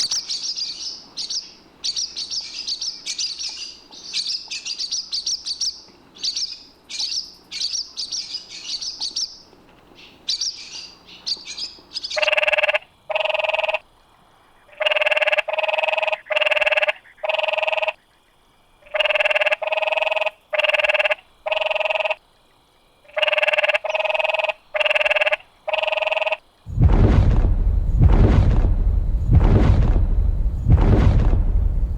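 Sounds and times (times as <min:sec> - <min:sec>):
small birds chirping: 0:00.0 - 0:12.3, 0:23.8 - 0:24.7.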